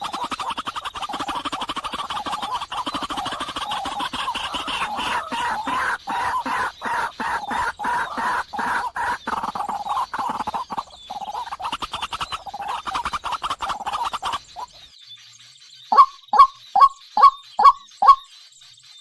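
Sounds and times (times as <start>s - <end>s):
birds chattering: 0.0s - 19.0s.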